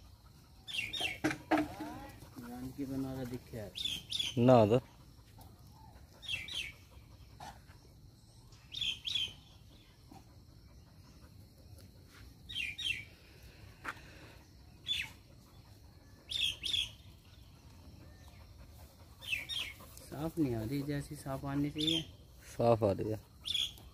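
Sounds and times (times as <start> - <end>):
bird chirping high: 0.7 - 2.0, 3.7 - 4.7, 6.2 - 7.0, 8.5 - 9.9, 12.5 - 13.2, 14.8 - 15.2, 16.2 - 17.2, 19.1 - 19.9, 23.4 - 23.9.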